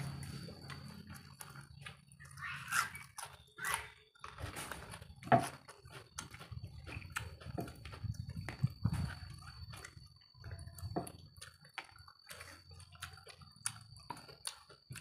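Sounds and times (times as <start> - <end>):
chewing and lip smacks: 0.2 - 15.0.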